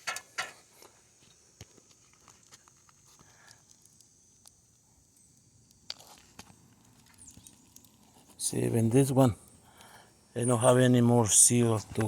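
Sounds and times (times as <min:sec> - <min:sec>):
light clicks and taps on shingles: 0:00.0 - 0:08.5.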